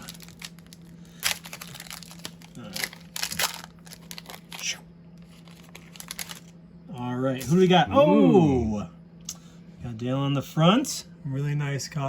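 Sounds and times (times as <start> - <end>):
foil wrapper crinkling: 0.0 - 6.6
faint low hum: 0.0 - 12.0.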